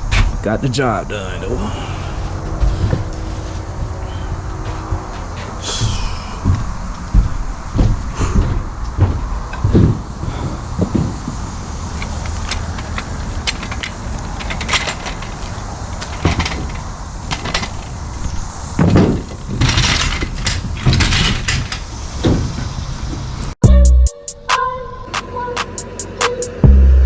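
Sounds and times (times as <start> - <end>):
steady low rumble: 1.3 - 9.2, 25.1 - 27.0
rustling: 2.0 - 5.7
knocks and clatter: 2.4 - 23.3.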